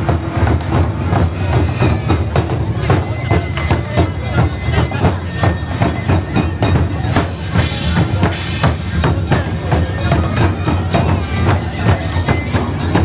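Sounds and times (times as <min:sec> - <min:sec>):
drums beaten rapidly: 0:00.0 - 0:13.0.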